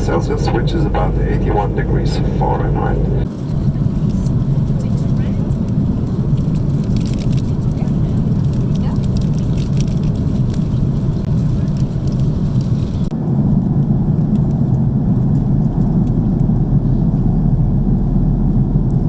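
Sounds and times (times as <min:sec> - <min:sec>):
airplane cabin engine roar: 0:00.0 - 0:19.0.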